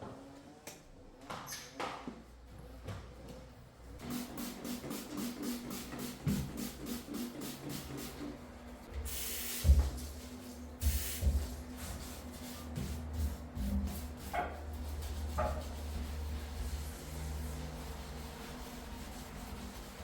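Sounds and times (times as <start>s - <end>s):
short hissing sprays: 9.1s - 11.6s.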